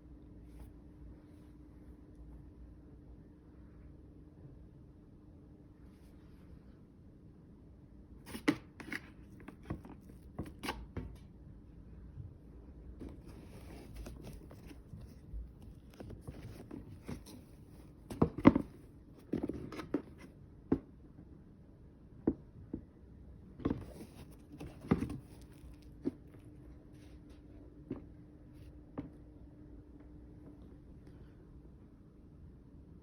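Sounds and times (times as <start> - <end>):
soft rustling: 13.0 - 20.3.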